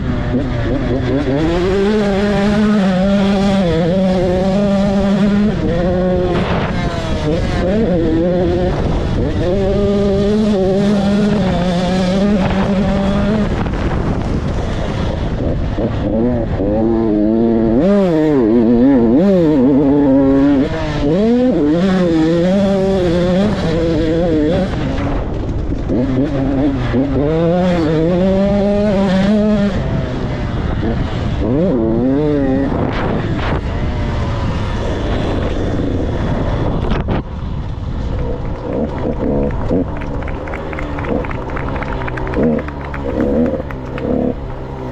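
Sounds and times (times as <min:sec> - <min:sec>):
motocross bike engine revving: 0:00.0 - 0:44.9.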